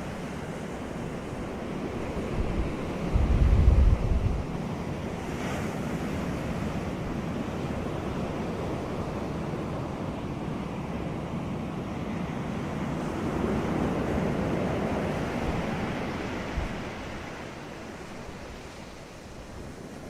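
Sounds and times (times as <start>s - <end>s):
sea surf washing on beach: 0.0s - 20.0s
wind buffeting microphone: 1.2s - 10.1s, 12.0s - 20.0s.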